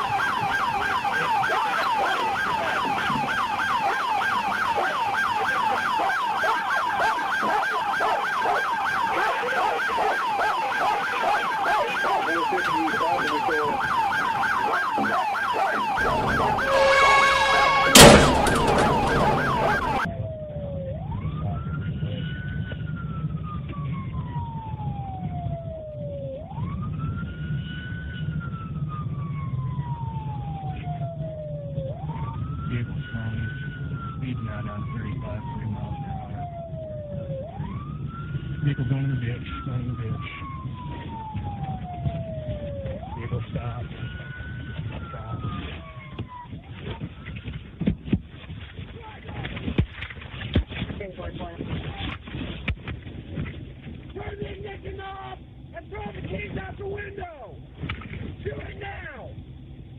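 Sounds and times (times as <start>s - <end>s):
police siren yelping: 0.0s - 47.7s
police siren wailing: 0.0s - 47.8s
sharp crack: 15.0s - 20.1s
vehicle engine rumble: 15.2s - 38.7s
horn-like tone: 16.0s - 19.6s.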